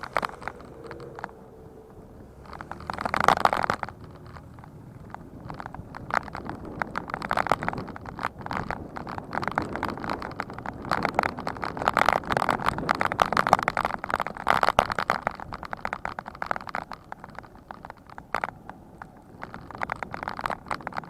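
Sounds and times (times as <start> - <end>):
bicycle rattling on rough surface: 0.0 - 21.0.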